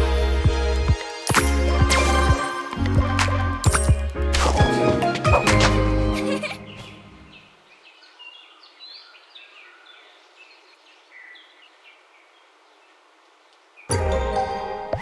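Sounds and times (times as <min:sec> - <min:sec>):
music: 0:00.0 - 0:07.3, 0:13.9 - 0:15.0
faint birds chirping: 0:06.5 - 0:13.9
light outdoor hiss: 0:07.3 - 0:13.9.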